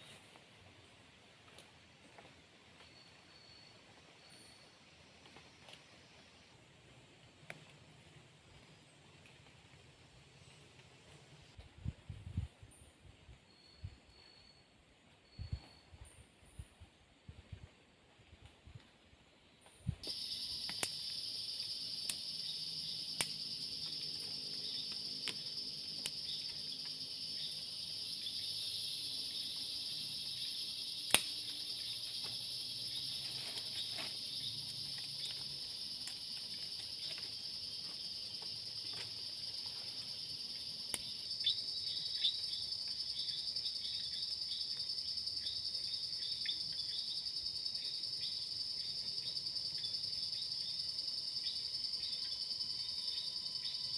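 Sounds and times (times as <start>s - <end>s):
insects trilling: 20.0s - 53.9s
sharp clicks: 31.1s - 31.4s.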